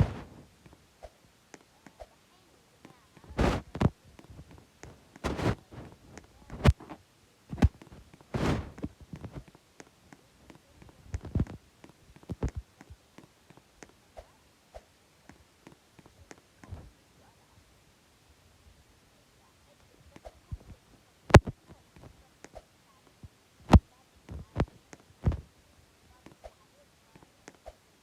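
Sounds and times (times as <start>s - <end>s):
thumps and knocks: 3.3s - 9.4s, 23.7s - 25.4s.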